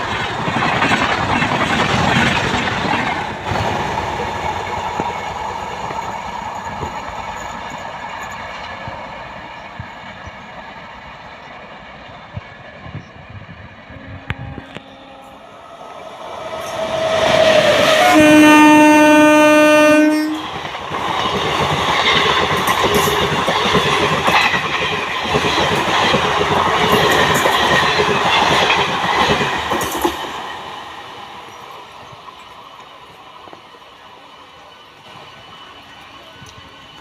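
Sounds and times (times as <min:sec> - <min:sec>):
train coaches rushing past: 0:00.0 - 0:37.0
train horn blast: 0:13.9 - 0:15.6, 0:17.6 - 0:20.4.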